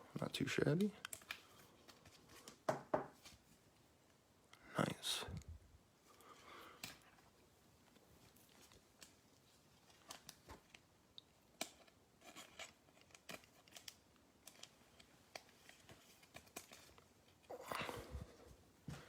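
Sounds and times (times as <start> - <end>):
card packs crinkling and rustling: 0.1 - 3.7, 6.8 - 18.0.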